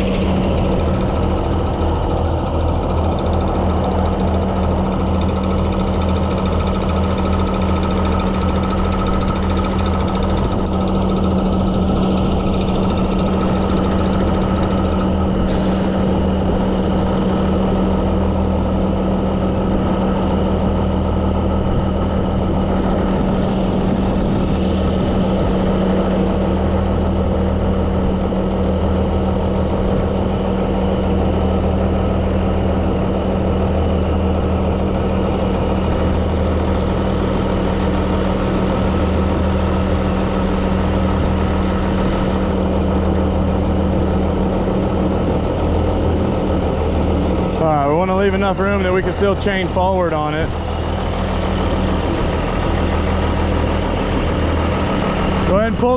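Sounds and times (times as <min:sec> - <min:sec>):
diesel truck engine idling: 0:00.0 - 0:55.9
air hiss: 0:15.5 - 0:16.5.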